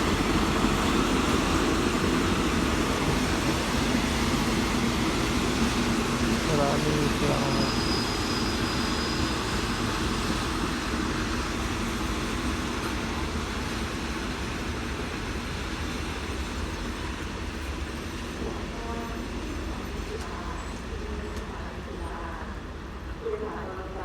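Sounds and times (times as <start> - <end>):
train wheels rumbling on track: 0.0 - 24.0.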